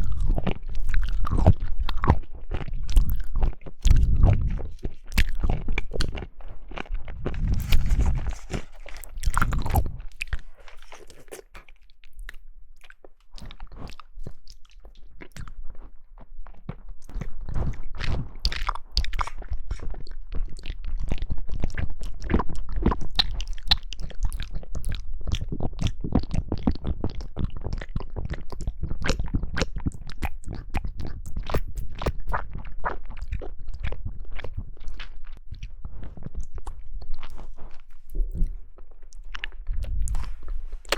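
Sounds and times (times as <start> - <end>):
chewing and biting jelly: 0.0 - 40.9.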